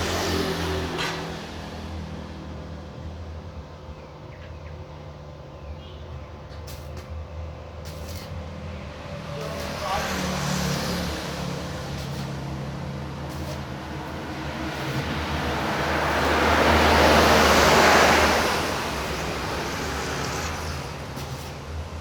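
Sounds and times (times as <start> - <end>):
vehicle passing with whoosh: 0.0 - 3.2, 8.3 - 22.0.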